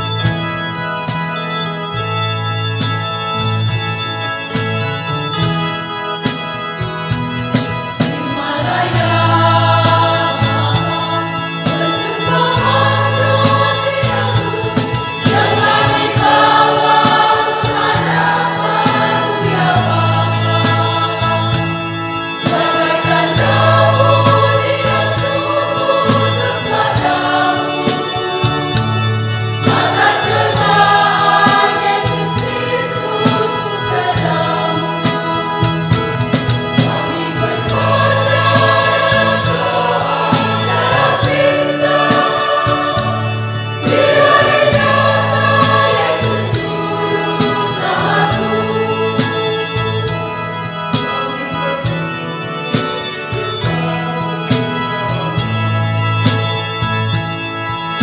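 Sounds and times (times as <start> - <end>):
choir singing in harmony: 0.0 - 58.0
sustained low bass notes: 0.0 - 58.0
sharp beat: 8.0 - 29.0, 29.6 - 48.7.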